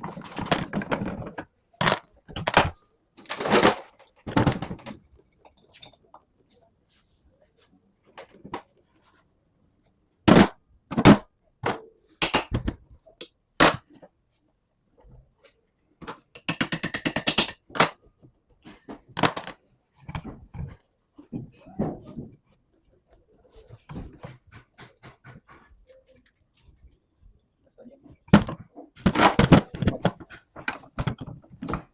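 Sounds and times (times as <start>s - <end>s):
hand tools knocking on metal: 24.1s - 25.9s.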